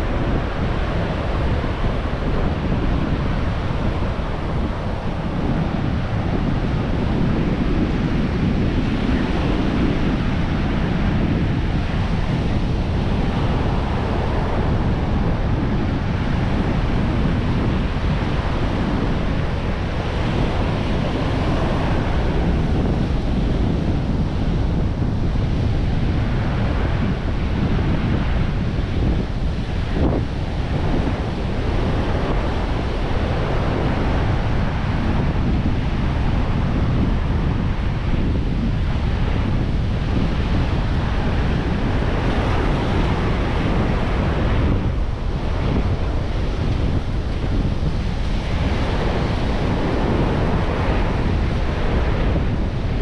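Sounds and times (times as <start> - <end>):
ocean surf washing on beach: 0.0 - 53.0
wind buffeting microphone: 0.0 - 53.0.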